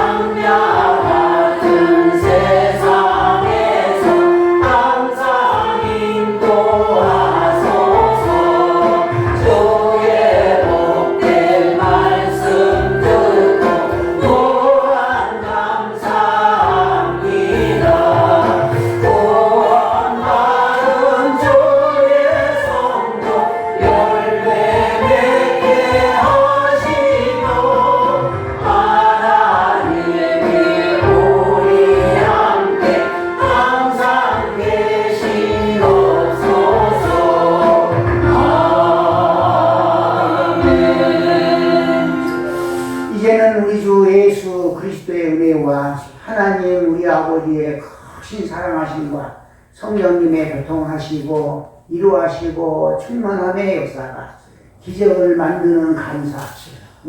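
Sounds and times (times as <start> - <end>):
congregation singing a hymn: 0.0 - 44.7.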